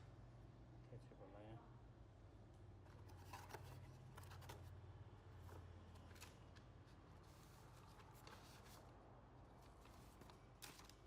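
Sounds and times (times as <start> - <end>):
paper rustling: 5.4 - 9.0, 9.6 - 11.0.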